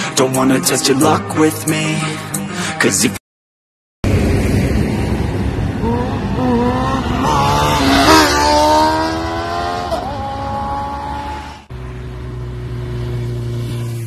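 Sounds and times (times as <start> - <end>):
superbike engine accelerating past: 5.8 - 11.6.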